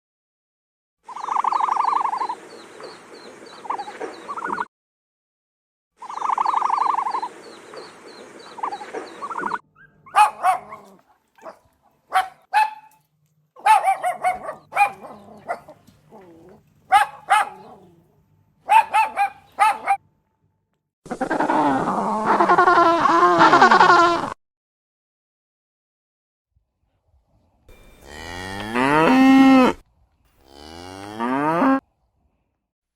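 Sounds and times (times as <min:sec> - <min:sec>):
dog barking: 0:09.8 - 0:13.0, 0:13.6 - 0:20.0
dog whining: 0:13.6 - 0:20.0.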